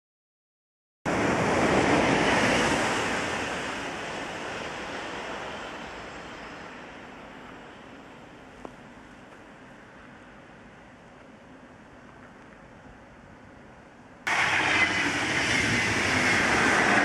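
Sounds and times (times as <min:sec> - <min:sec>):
locomotive rushing away: 0:14.3 - 0:17.0.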